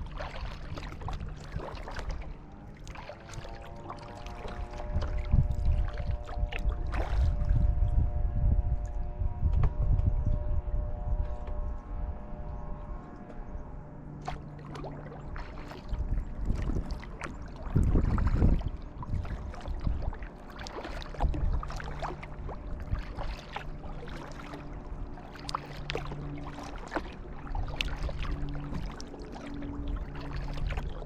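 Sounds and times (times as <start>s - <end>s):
paddle blades splashing: 0.0s - 7.9s, 12.9s - 31.0s
low rumble: 0.0s - 31.0s
water dripping from paddle: 2.8s - 7.1s, 25.2s - 31.0s.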